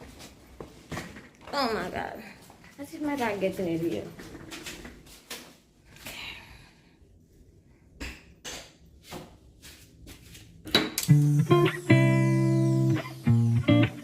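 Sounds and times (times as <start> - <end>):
plucked guitar music with bass: 11.0 - 14.0.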